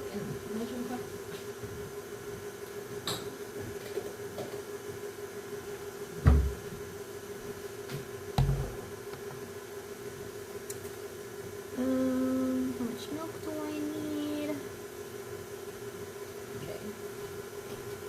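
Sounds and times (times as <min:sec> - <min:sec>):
steady hum: 0:00.0 - 0:18.0
dull thumps of door shutting: 0:06.2 - 0:06.6.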